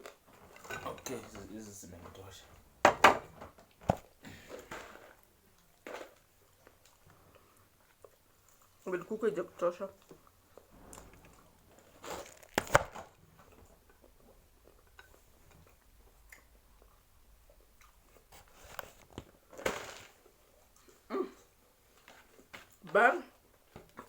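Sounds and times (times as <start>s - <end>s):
person chewing fried chicken: 5.0s - 8.9s, 13.4s - 19.5s.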